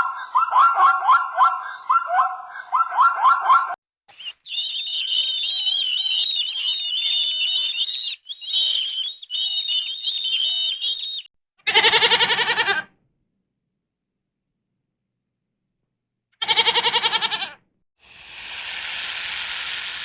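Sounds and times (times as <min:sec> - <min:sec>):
small birds chirping: 0:04.1 - 0:11.3, 0:18.0 - 0:20.0
goat bleating: 0:16.4 - 0:17.6.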